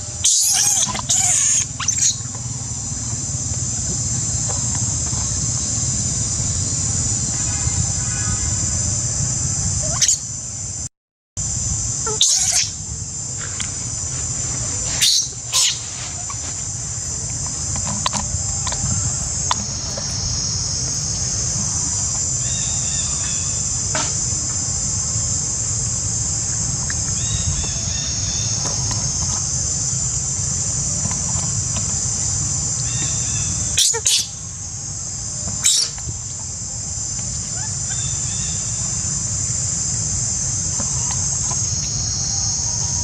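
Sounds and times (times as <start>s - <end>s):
high-pitched insect chorus: 0.0s - 43.0s
faint chirps: 14.5s - 23.8s.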